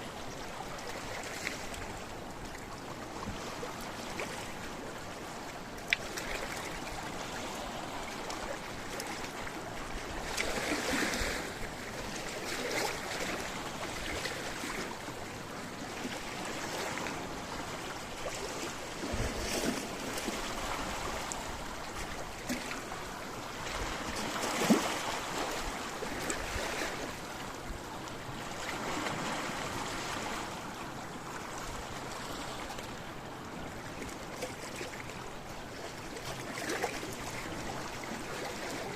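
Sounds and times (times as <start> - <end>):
waves splashing against rocks: 5.8 - 14.8, 16.0 - 27.6.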